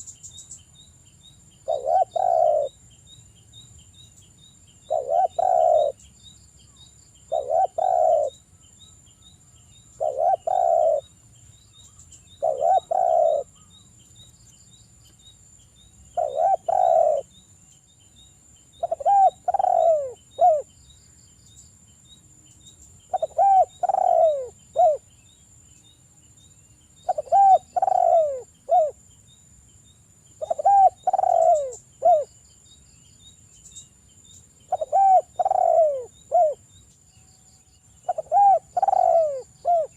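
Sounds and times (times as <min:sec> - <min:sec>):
dove cooing: 0:01.6 - 0:02.8, 0:04.9 - 0:06.0, 0:07.3 - 0:08.4, 0:10.0 - 0:11.1, 0:12.3 - 0:13.6, 0:16.2 - 0:17.3, 0:18.8 - 0:20.7, 0:23.1 - 0:25.0, 0:27.0 - 0:29.0, 0:30.4 - 0:32.3, 0:34.7 - 0:36.6, 0:38.0 - 0:39.9.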